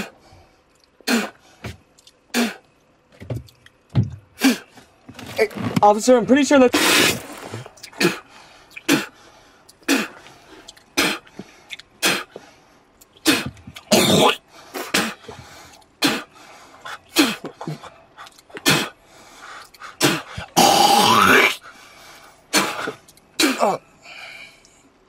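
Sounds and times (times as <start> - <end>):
man spitting: 0.8 - 1.4, 2.0 - 2.7, 6.7 - 12.4, 13.1 - 15.4, 16.0 - 19.0, 19.6 - 21.6, 22.5 - 23.8.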